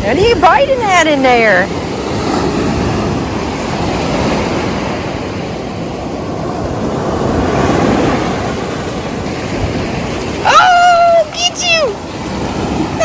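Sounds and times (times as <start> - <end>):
ocean surf washing onto beach: 0.0 - 13.0
wind buffeting microphone: 0.0 - 13.0.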